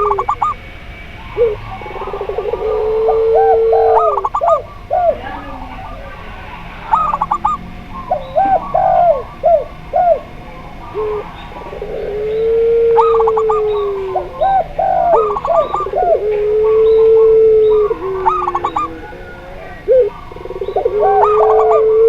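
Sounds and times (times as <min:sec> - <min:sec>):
doves cooing: 0:00.0 - 0:22.0
long low dove coo: 0:00.0 - 0:22.0.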